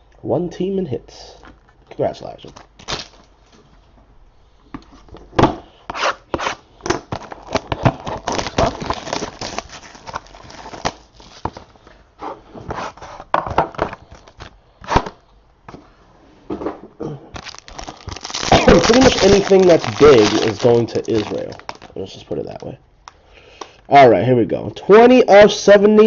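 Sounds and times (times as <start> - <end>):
packaging crinkling and tearing: 2.4 - 3.3, 7.0 - 11.7, 14.0 - 15.0, 17.4 - 22.7.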